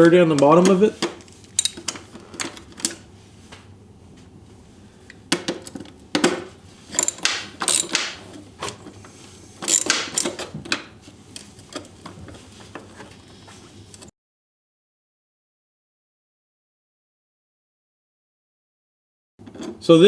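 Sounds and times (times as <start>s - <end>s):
metal clinking: 1.5s - 2.0s, 6.9s - 8.2s, 9.6s - 10.4s
hand tool clicking: 6.9s - 8.2s, 9.7s - 10.4s.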